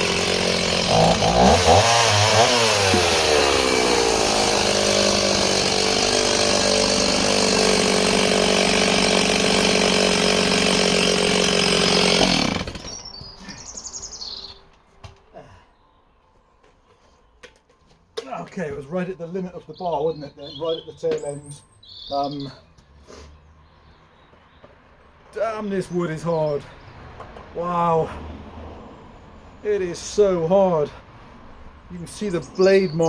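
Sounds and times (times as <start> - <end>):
chainsaw cutting log: 0.0 - 13.8.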